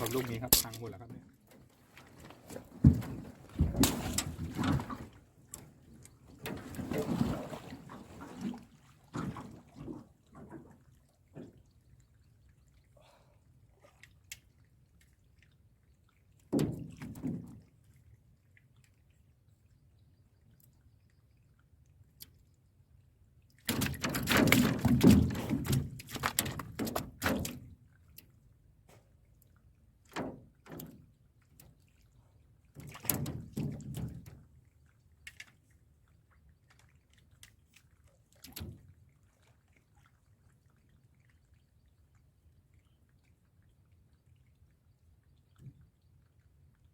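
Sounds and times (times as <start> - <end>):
water splashing: 0.0 - 1.1, 2.3 - 11.6
faint water drips: 0.0 - 23.9, 25.6 - 46.9.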